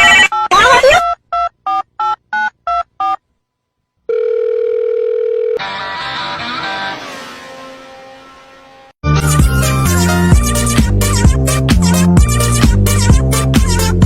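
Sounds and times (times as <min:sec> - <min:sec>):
steady telephone tone: 0:04.1 - 0:05.6
music: 0:05.6 - 0:14.0.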